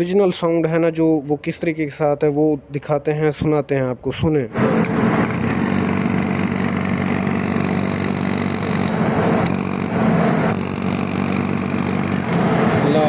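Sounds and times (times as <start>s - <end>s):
vacuum pump motor hum: 4.8s - 13.0s.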